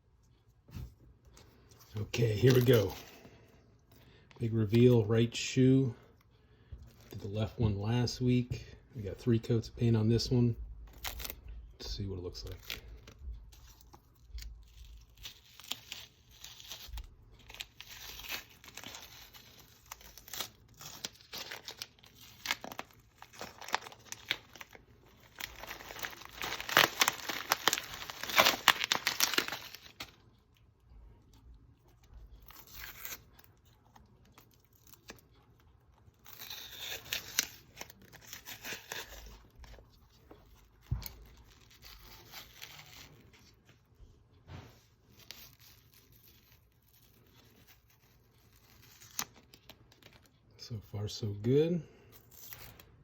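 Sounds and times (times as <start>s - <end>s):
tape peeling off: 13.0s - 30.2s, 45.1s - 50.2s.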